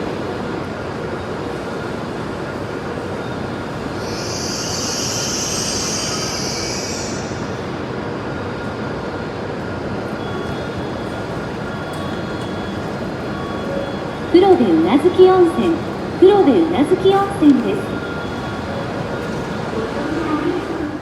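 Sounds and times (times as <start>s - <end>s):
train rumble: 0.0s - 21.0s
high squeal or hiss: 4.0s - 7.7s.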